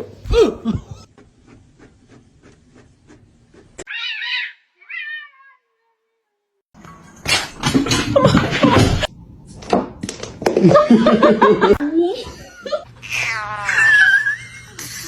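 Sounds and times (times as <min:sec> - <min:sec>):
cat meowing: 0:03.9 - 0:06.0.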